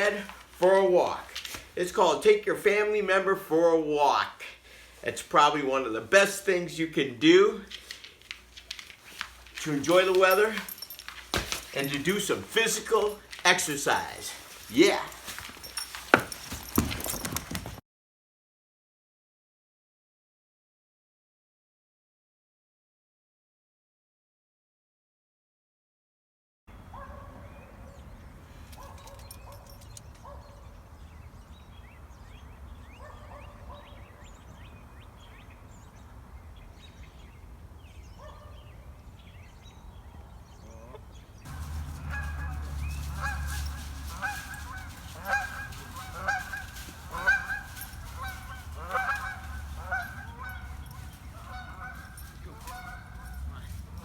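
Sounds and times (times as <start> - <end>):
geese honking: 40.8 - 54.0.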